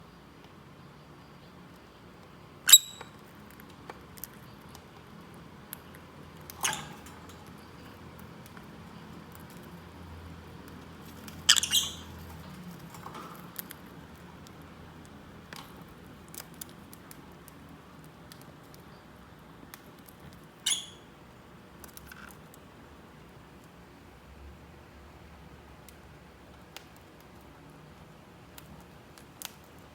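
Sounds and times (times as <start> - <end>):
lovebird shrill calls: 2.7 - 3.1, 11.5 - 12.2, 20.6 - 21.1.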